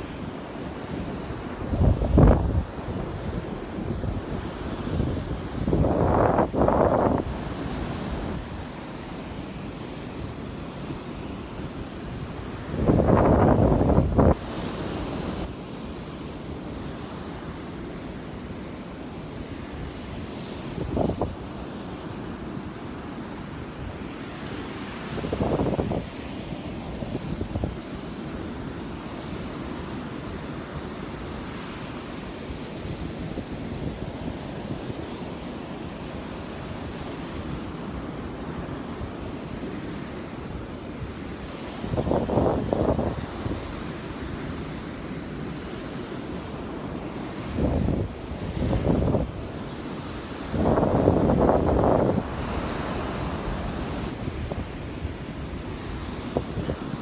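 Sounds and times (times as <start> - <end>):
wind buffeting microphone: 0.0 - 9.2, 9.9 - 15.5, 19.8 - 21.7, 24.7 - 28.2, 41.0 - 44.7, 47.0 - 57.0
waves washing onto beach: 0.0 - 57.0.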